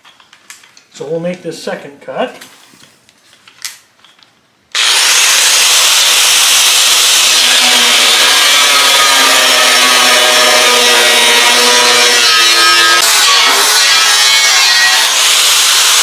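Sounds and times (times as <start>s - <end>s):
power tool cutting steel: 4.7s - 16.0s.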